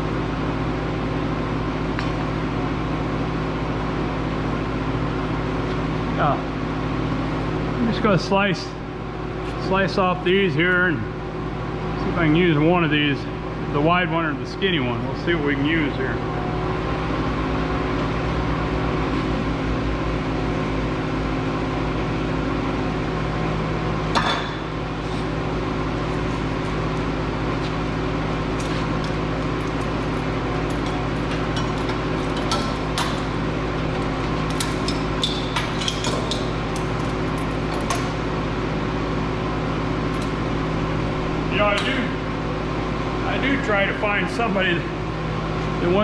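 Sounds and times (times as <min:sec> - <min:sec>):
steady machine hum: 0:00.0 - 0:46.0
scrap metal clinking and knocking: 0:28.5 - 0:38.3.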